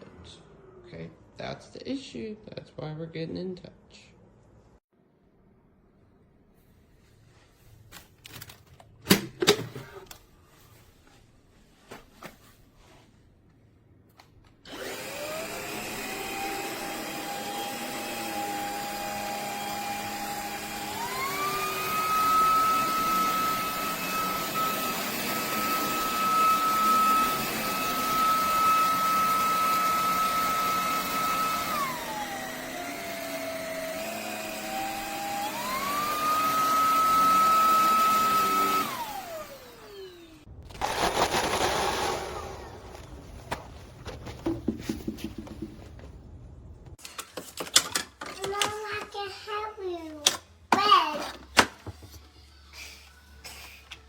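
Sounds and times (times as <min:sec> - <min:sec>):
stick vacuum motor whining: 0:14.6 - 0:43.2.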